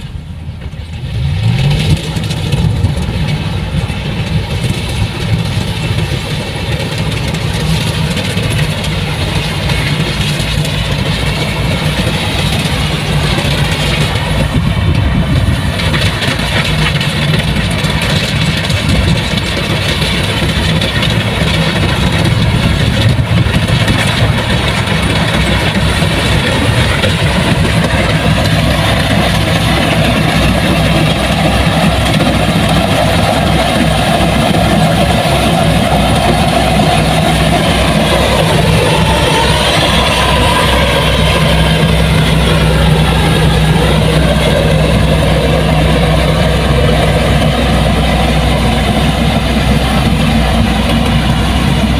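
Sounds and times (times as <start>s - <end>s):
heavy machine engine running: 0.0s - 51.9s.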